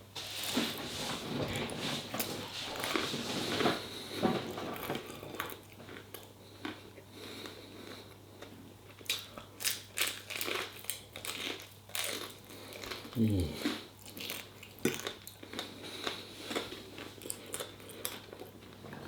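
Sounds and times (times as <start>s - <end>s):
person chewing noodles: 2.6s - 19.0s.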